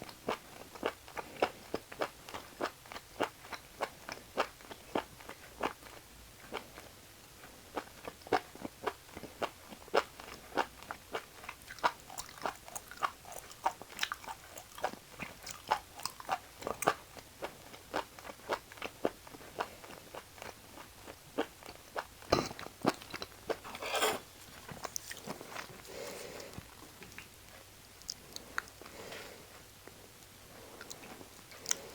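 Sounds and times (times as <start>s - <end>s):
wet crunchy chewing: 7.8s - 29.1s, 29.8s - 31.9s.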